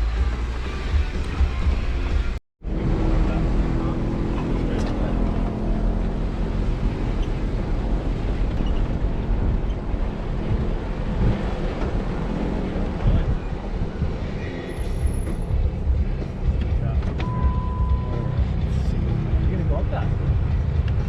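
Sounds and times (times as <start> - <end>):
engine and tyres rumbling: 0.0 - 21.0.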